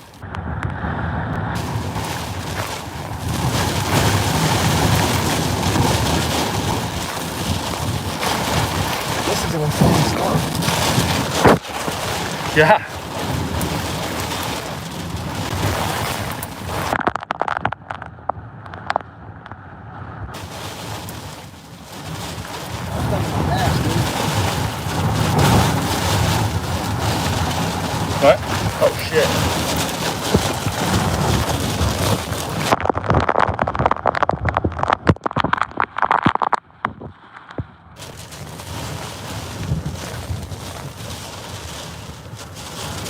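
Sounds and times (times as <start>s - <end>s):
storm wind and rain roaring: 0.0s - 43.0s
sharp clicks and cracks: 1.6s - 19.1s, 21.0s - 41.8s.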